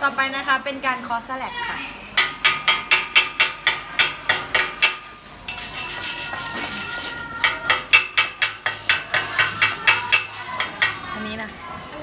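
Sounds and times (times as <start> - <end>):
chipping hammer striking steel: 2.2 - 5.1, 7.4 - 11.0.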